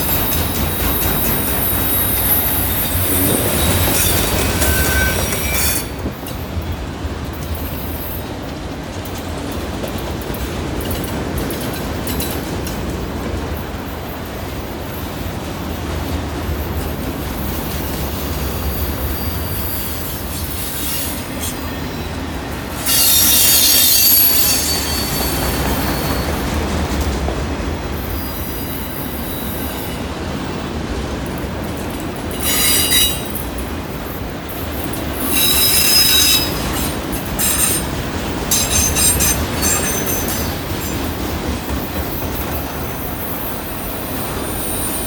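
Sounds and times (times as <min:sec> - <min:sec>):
wheel flange squeal: 0:00.0 - 0:06.0, 0:22.8 - 0:26.5, 0:32.3 - 0:33.4, 0:35.2 - 0:40.6
freight train wheels rumbling and rattling: 0:00.0 - 0:45.0.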